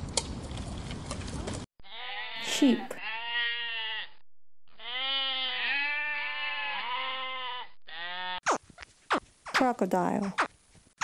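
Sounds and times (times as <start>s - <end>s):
sheep bleating: 1.8s - 8.4s.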